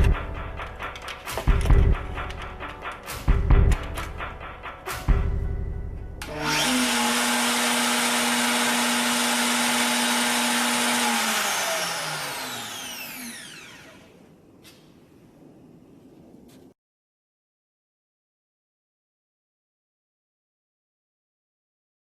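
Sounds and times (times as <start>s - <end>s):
router motor running: 6.2s - 14.2s.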